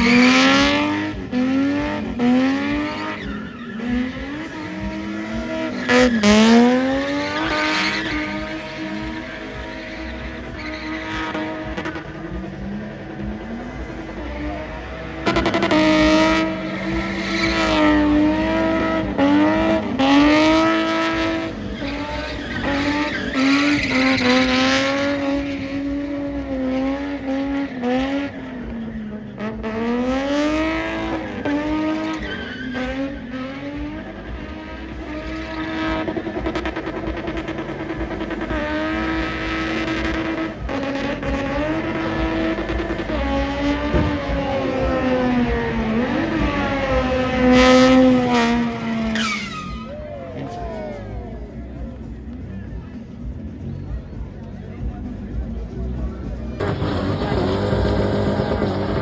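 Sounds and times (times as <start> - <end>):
tyres squealing and skidding: 0.0 - 12.7, 14.0 - 28.2, 29.8 - 51.6, 56.2 - 59.0
car engine revving: 0.0 - 59.0.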